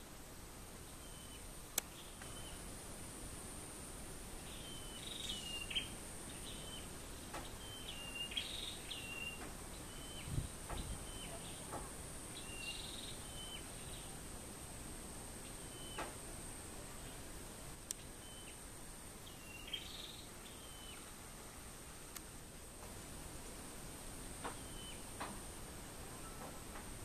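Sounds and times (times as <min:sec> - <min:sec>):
songbird chirping: 0:00.8 - 0:03.0, 0:03.9 - 0:14.8, 0:15.4 - 0:16.2, 0:16.8 - 0:22.3, 0:24.2 - 0:27.0
high-pitched insect drone: 0:01.0 - 0:16.2.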